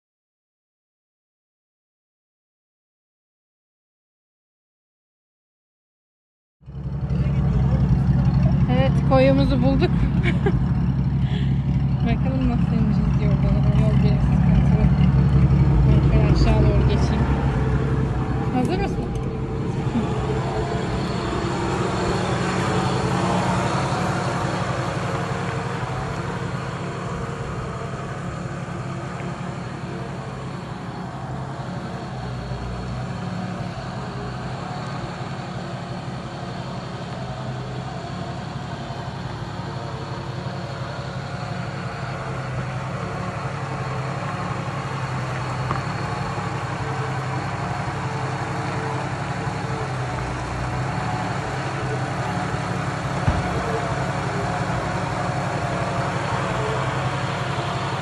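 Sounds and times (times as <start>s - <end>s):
car engine running low hum: 6.6s - 58.0s.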